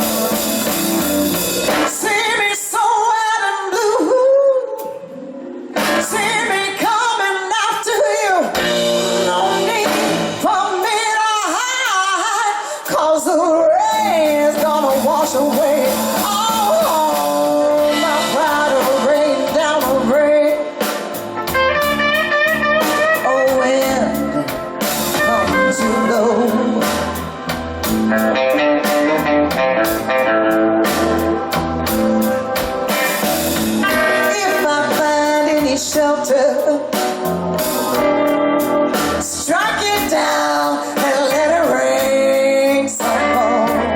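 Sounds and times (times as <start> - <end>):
bass and drums: 0.0 - 2.8, 5.7 - 7.2, 7.8 - 43.9
electric guitar: 0.0 - 2.9, 3.8 - 11.3, 13.7 - 43.9
woman singing blues: 1.7 - 5.1, 5.8 - 20.9, 22.1 - 27.3, 33.8 - 37.3, 38.0 - 43.9.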